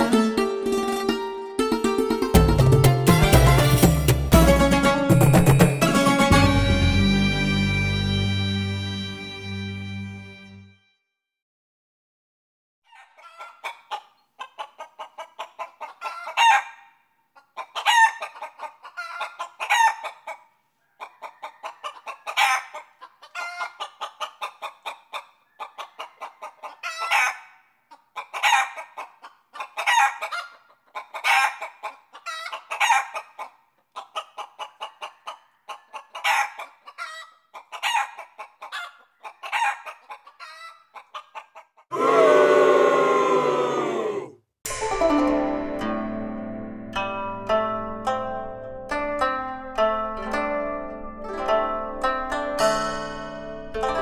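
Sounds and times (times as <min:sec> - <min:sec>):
chickens clucking and cackling: 0:12.9 - 0:44.0
chicken squawk: 0:12.9 - 0:44.4.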